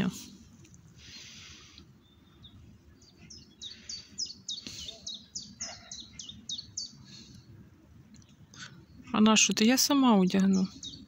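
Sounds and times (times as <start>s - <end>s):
songbird whistling: 2.0s - 7.1s.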